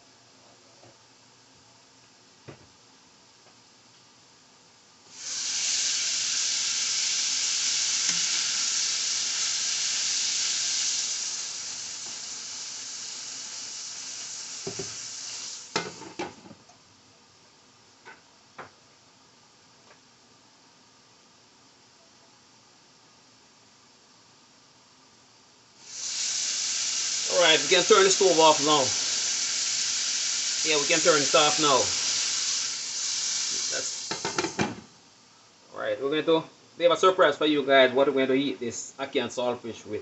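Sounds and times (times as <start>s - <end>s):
food sizzling in a frying pan: 5.1s - 16.3s, 25.8s - 35.0s.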